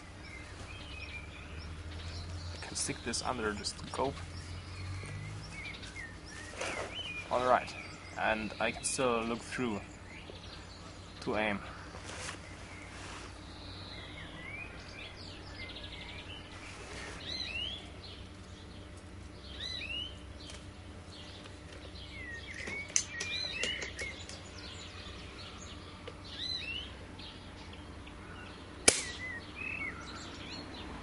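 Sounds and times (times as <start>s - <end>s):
small songbirds chirping: 0.0s - 31.0s
steady low background noise: 0.0s - 31.0s
sharp crack: 28.8s - 29.4s.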